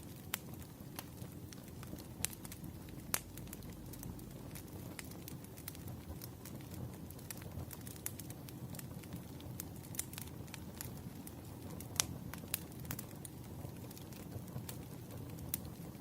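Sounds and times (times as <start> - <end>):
low steady rumble: 0.0 - 7.8
wood fire crackling and popping: 0.0 - 16.0.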